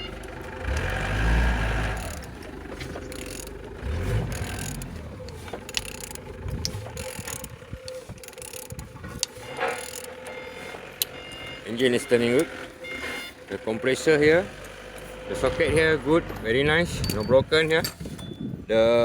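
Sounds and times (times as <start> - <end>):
engine turned over by hand: 0.0 - 19.0
mechanical clicking: 3.1 - 3.6, 4.2 - 10.4.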